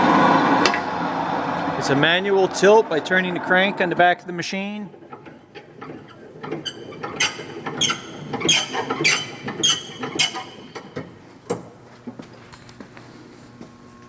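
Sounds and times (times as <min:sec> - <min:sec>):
hand crank gearing squeaking: 0:04.5 - 0:11.2.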